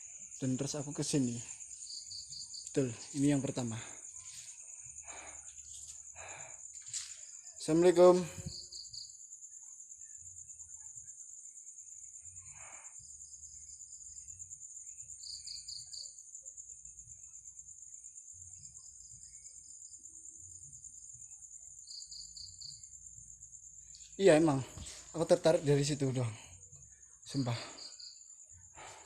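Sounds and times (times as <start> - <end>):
high-pitched cricket drone: 0.0 - 29.0
insect trills: 0.0 - 29.0
rustle: 5.4 - 7.4.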